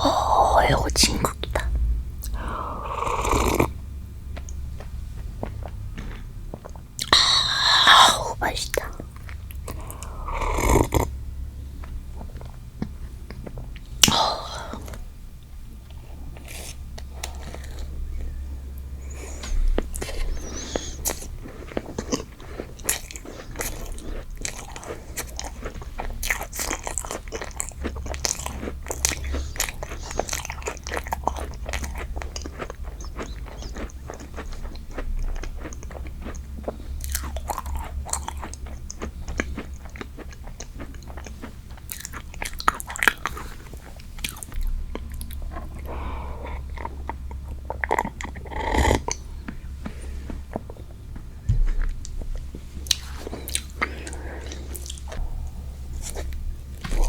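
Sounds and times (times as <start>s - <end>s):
wet mouth clicks: 0.0s - 3.8s, 7.0s - 11.1s, 14.0s - 15.0s
chewing food: 0.0s - 57.0s.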